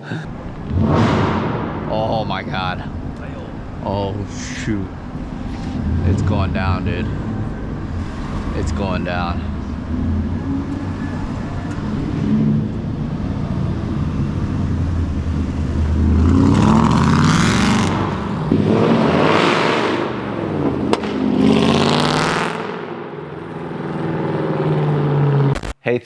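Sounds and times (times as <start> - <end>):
engine drone: 0.0 - 25.6
loud cars accelerating past: 0.3 - 25.6.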